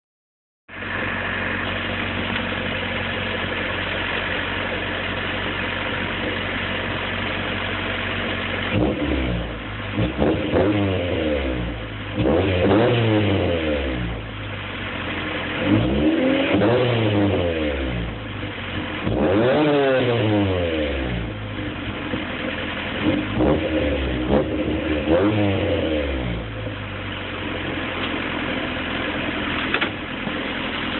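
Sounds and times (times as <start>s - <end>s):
car engine idling and revving: 0.7s - 30.9s.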